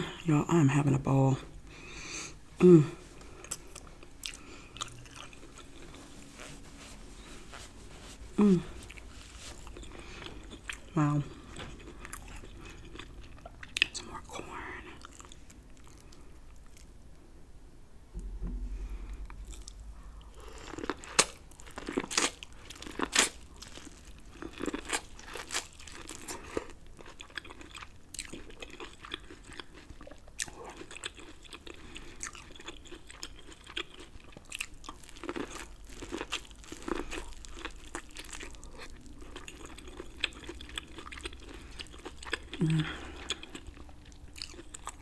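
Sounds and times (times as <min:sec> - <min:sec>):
wet chewing: 0:03.2 - 0:14.1, 0:14.9 - 0:16.9, 0:19.2 - 0:45.0
crunching corn kernels: 0:20.4 - 0:45.0.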